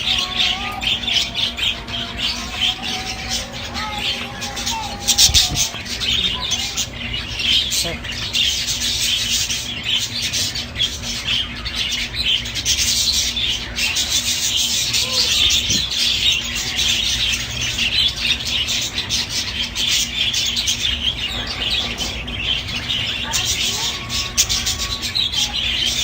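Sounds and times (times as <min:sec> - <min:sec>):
cage birds chirping: 0:00.0 - 0:26.0.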